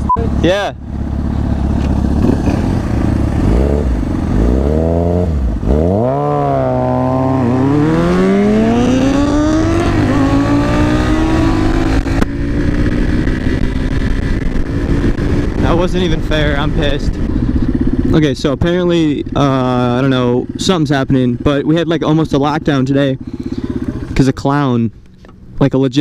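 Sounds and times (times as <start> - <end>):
motorcycle engine revving: 0.0 - 25.6.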